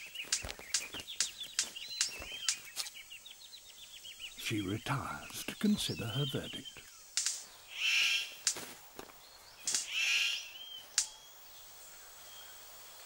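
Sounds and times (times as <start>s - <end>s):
harsh buzzy bird calls: 0.0s - 13.0s
sharp clicks: 0.2s - 2.7s, 7.1s - 7.5s, 9.6s - 9.9s.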